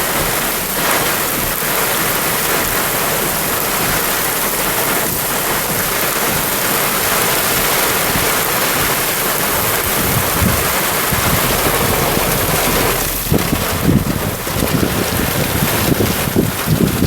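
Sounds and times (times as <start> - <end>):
heavy rain hissing: 0.0 - 17.0
wind buffeting microphone: 9.3 - 17.0.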